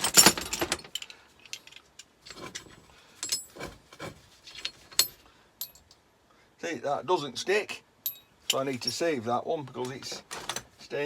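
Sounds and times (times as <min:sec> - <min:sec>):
metal parts clicking and knocking: 0:00.0 - 0:06.0, 0:08.0 - 0:09.0.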